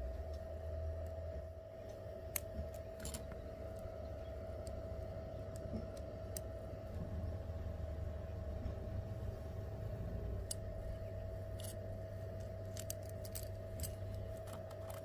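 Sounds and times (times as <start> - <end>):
steady hum: 0.0 - 15.0
small hard parts clicking: 1.8 - 3.9, 11.5 - 15.0.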